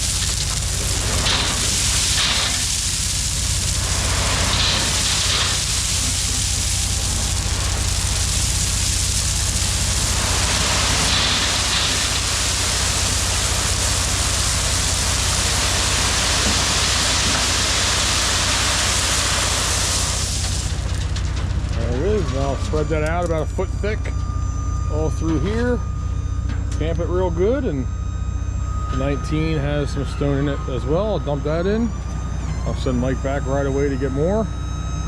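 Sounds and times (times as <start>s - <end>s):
loud rushing hiss: 0.0s - 20.9s
diesel engine running: 0.0s - 35.0s.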